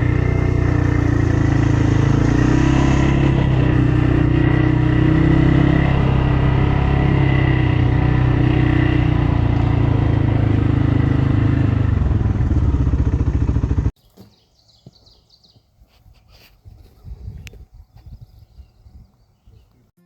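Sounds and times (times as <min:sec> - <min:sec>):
engine drone: 0:00.0 - 0:13.9.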